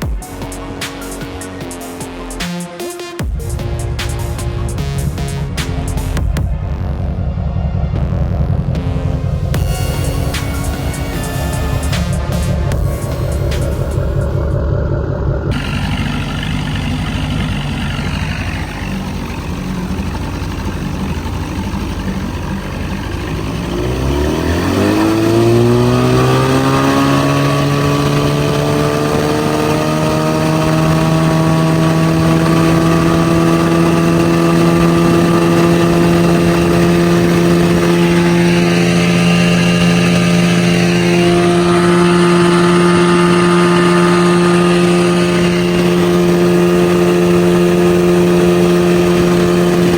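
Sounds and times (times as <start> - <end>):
outboard motor running: 3.2 - 49.9.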